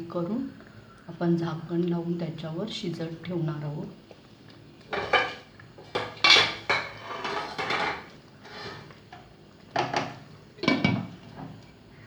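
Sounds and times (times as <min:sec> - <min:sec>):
pot lid and utensils clanking: 0:04.9 - 0:08.9, 0:09.8 - 0:11.2.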